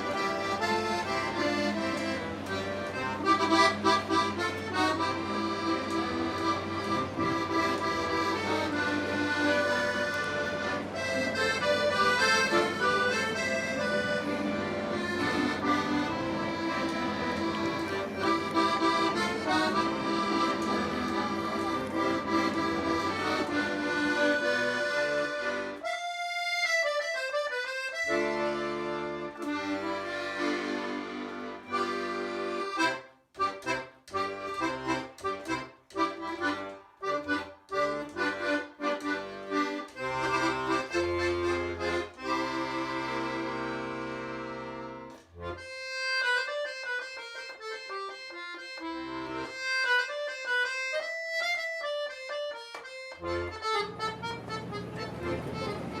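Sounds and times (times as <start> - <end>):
accordion music: 0.0 - 56.0.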